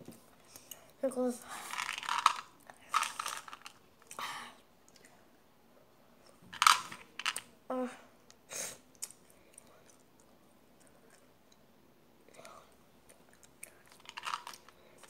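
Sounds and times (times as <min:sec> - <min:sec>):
child voiced sound: 0:07.7 - 0:08.1
child chewing: 0:08.6 - 0:11.7, 0:12.3 - 0:15.0.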